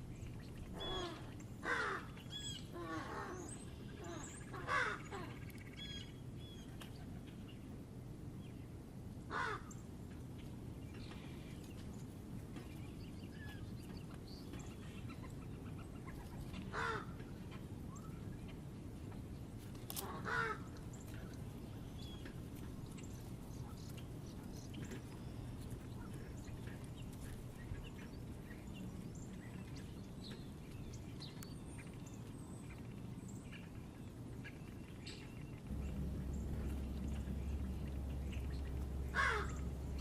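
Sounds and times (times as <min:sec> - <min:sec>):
small birds chirping: 0:00.0 - 0:08.7, 0:09.6 - 0:40.0
steady low rumble: 0:00.0 - 0:40.0
crow cawing: 0:00.8 - 0:02.1, 0:02.8 - 0:03.5, 0:04.1 - 0:05.3, 0:09.3 - 0:09.7, 0:16.7 - 0:17.2, 0:20.0 - 0:20.7, 0:39.1 - 0:39.7.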